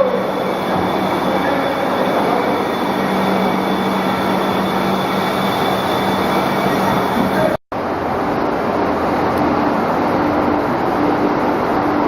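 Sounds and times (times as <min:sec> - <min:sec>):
machinery clattering: 0:00.0 - 0:07.6
machinery low hum: 0:00.0 - 0:12.0.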